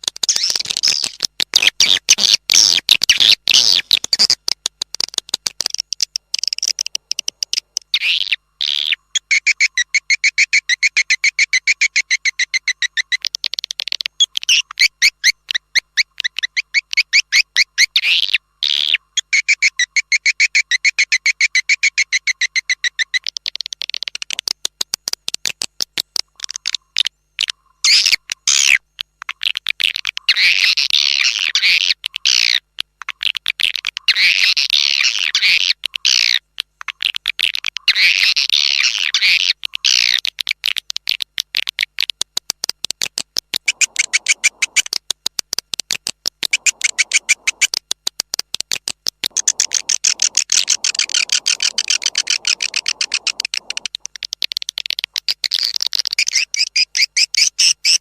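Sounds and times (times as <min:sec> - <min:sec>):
swiftlets twittering: 0:43.6 - 0:44.9, 0:46.5 - 0:47.7, 0:49.3 - 0:54.0.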